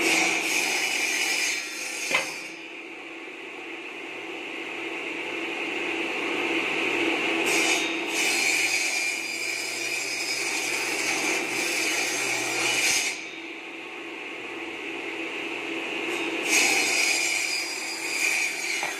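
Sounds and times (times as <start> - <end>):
saw rasping through bamboo: 16.5 - 18.9.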